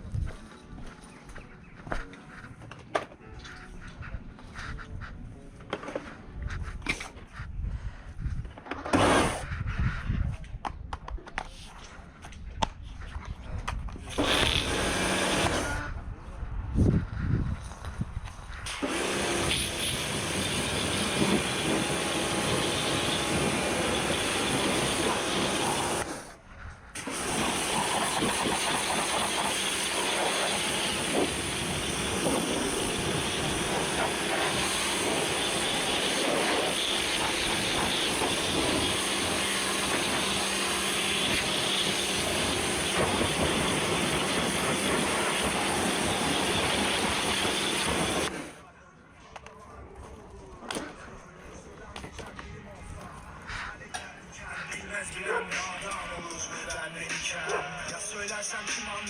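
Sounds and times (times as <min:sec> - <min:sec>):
pressure washer spraying: 0:08.9 - 0:09.4, 0:14.1 - 0:15.8, 0:18.7 - 0:26.3, 0:27.0 - 0:48.5.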